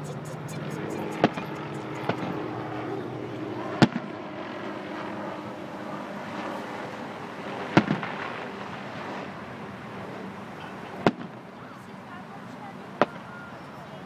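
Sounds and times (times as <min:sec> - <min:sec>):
steady background noise: 0:00.0 - 0:14.0
fireworks bangs: 0:00.4 - 0:02.5, 0:11.0 - 0:11.4, 0:13.0 - 0:13.4.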